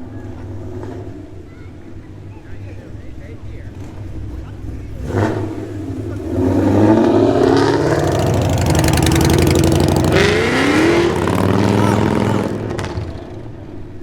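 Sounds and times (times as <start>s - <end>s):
car engine revving: 2.8s - 14.0s.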